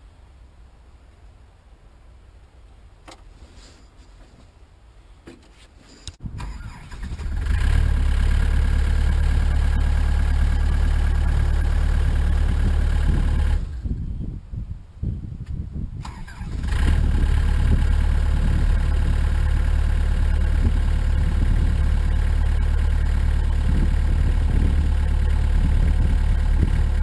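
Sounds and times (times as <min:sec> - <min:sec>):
diesel excavator engine running: 0:06.3 - 0:14.0, 0:16.3 - 0:27.0.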